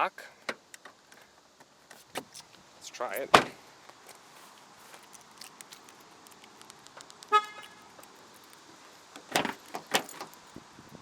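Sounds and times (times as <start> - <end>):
car door clunks: 3.3 - 3.6
car horn chirp: 7.3 - 7.9.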